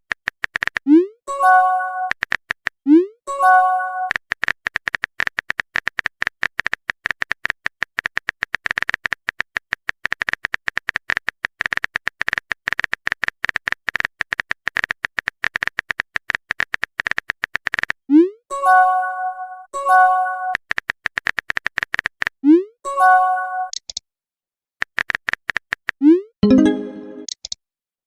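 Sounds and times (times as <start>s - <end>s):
phone keyboard typing clicks: 20.6s - 22.4s.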